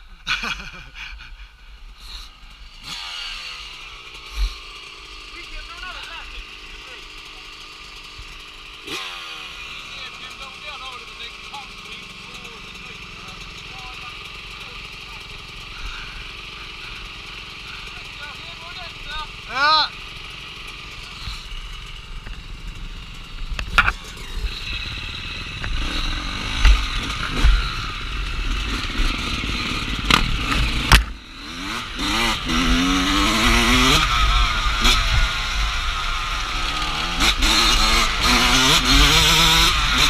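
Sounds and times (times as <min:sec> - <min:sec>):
dirt bike engine revving: 0:01.8 - 0:40.0
bike knocking and clattering: 0:28.5 - 0:32.2.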